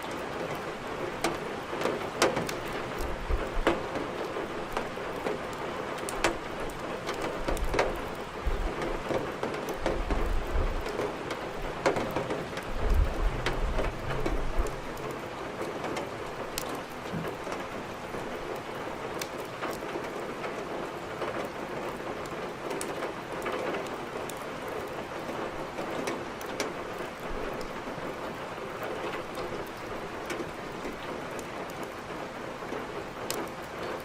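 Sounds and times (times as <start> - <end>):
rain: 0.0 - 34.0
firewood crackling: 0.4 - 20.2.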